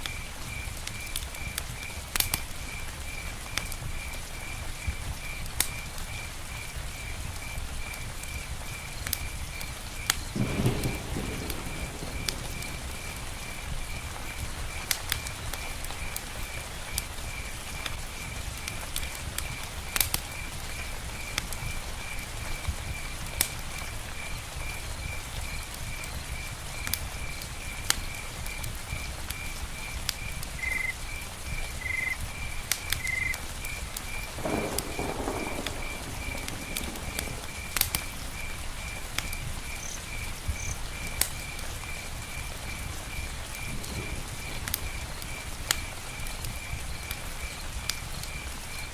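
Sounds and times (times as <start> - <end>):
rain on a tent: 0.0 - 48.9
sharp drips: 27.7 - 48.9.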